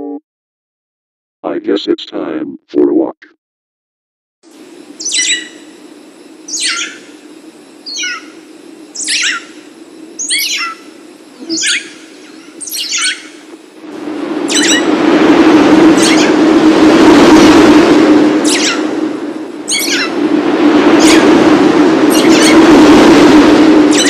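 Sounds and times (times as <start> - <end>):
steady low hum: 1.5 - 3.2, 4.5 - 24.0
birds chirping: 5.0 - 5.8, 6.5 - 7.2, 7.8 - 13.5, 14.5 - 14.9, 18.4 - 18.9, 19.7 - 20.2, 22.1 - 22.7
loud rushing noise: 13.2 - 24.0.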